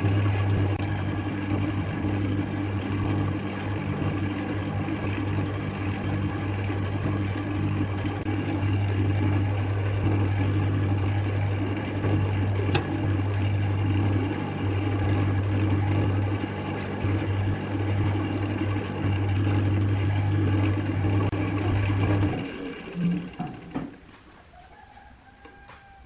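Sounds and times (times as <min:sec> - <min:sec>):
lathe motor humming: 0:00.0 - 0:24.0.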